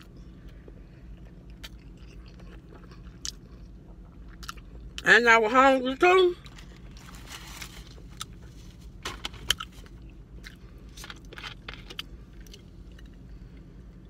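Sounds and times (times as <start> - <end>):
person chewing wetly: 0.0 - 5.0
steady low hum: 0.0 - 14.0.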